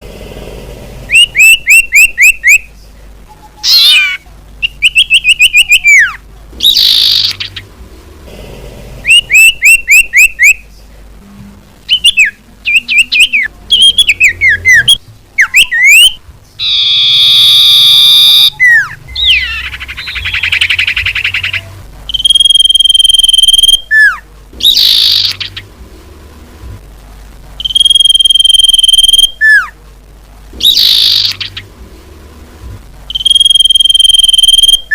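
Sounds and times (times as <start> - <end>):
harsh buzzy bird calls: 1.0 - 7.8, 8.9 - 11.0, 11.8 - 25.8, 27.6 - 29.8, 30.6 - 31.8
recorded bird whistles: 1.1 - 7.6, 9.0 - 10.8, 11.8 - 25.6, 27.6 - 29.8, 30.6 - 31.6, 33.1 - 34.9.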